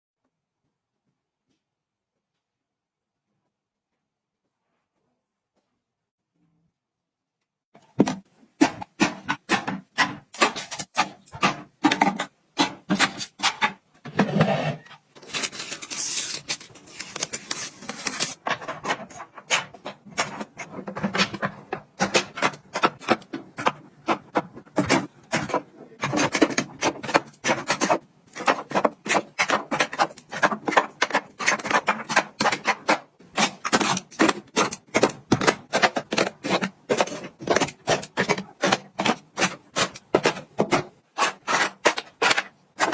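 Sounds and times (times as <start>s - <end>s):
objects clicking and knocking: 17.2s - 42.9s.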